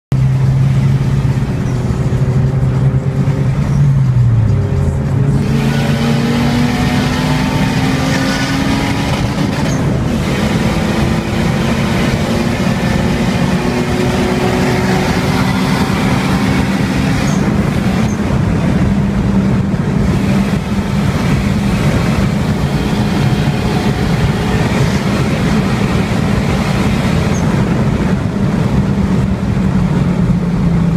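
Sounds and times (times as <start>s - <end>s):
turbocharged car engine boosting: 0.8s - 30.9s.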